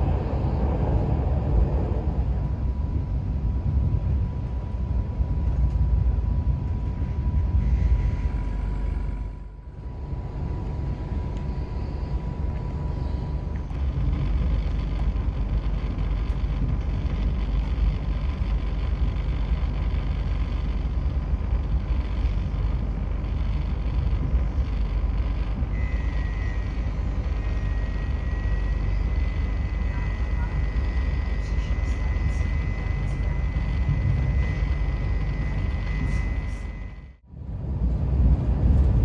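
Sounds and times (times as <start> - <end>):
train rumbling: 0.0 - 39.0.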